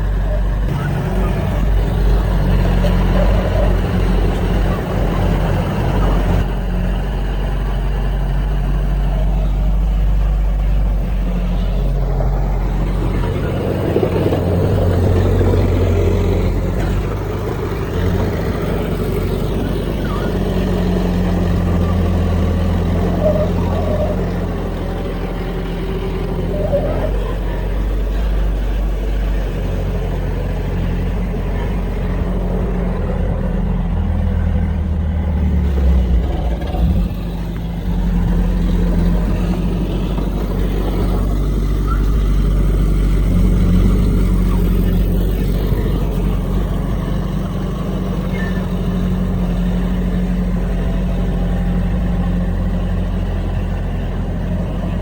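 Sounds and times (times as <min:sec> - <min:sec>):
heavy diesel engine working: 0:00.0 - 0:55.0.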